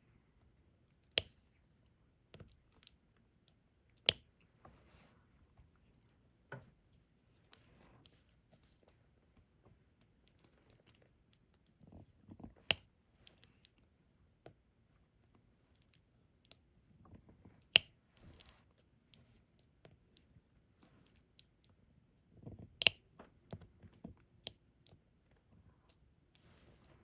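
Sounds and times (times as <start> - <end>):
soft rustling: 26.4 - 27.0.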